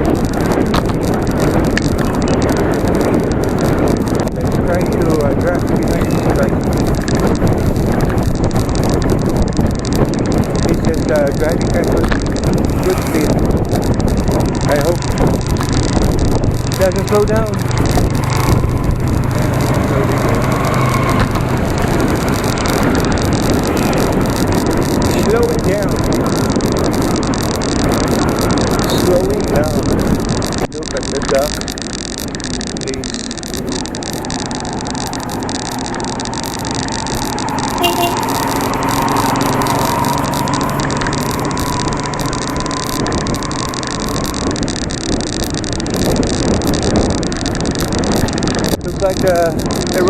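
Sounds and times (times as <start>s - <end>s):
rushing road noise: 0.0s - 50.0s
vehicle engine hum: 0.0s - 50.0s
brief high-pitched tone: 37.7s - 39.2s.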